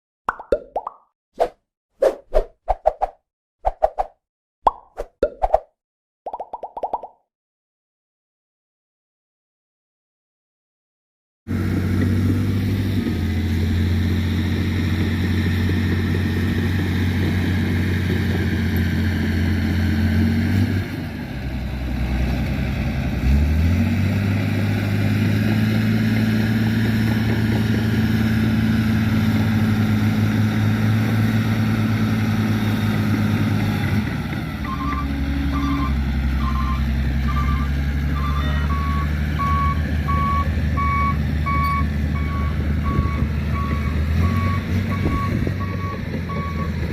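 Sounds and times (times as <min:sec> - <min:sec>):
diesel truck engine running: 0:11.5 - 0:46.9
reversing alarm beeping: 0:34.6 - 0:46.7.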